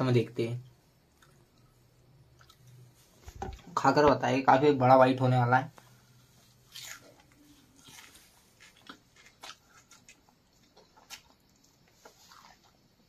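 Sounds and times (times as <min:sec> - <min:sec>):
soft mouth smacks chewing: 0:01.1 - 0:03.0, 0:06.7 - 0:12.9.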